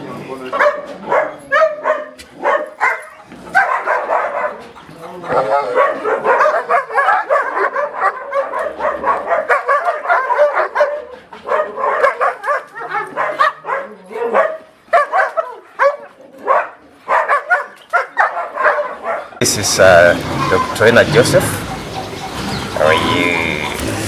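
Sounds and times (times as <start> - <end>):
dogs barking aggressively: 0.0 - 24.0
dogs yelping: 0.5 - 24.0.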